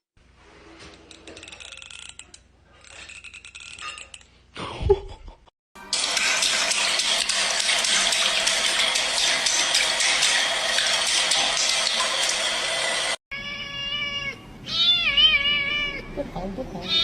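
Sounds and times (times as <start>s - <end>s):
cat meowing: 13.3s - 16.2s.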